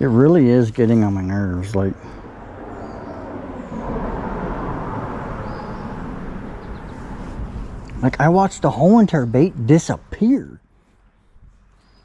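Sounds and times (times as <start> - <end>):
low rumble: 1.7 - 9.3
rushing noise: 1.9 - 9.0.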